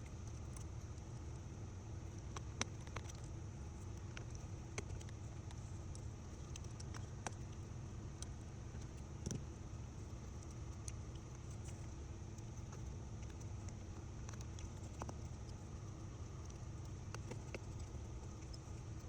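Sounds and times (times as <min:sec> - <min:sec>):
faint clicks and ticks: 0:00.0 - 0:19.0
low background hum: 0:00.0 - 0:19.0.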